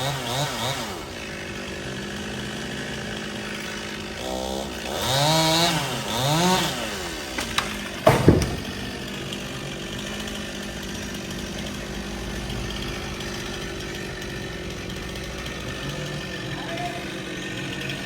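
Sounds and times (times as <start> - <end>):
chainsaw idling: 0.0 - 18.0
light knocks: 7.4 - 9.0.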